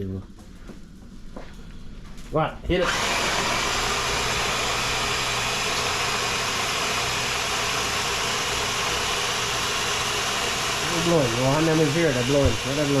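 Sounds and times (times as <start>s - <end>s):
electric blender grinding: 2.7s - 13.0s.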